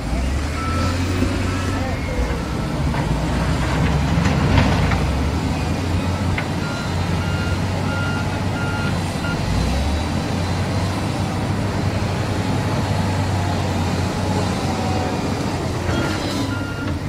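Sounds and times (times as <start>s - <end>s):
diesel construction machinery running: 0.0s - 17.0s
reversing alarm beeping: 0.5s - 2.9s, 6.0s - 9.5s, 15.9s - 17.0s.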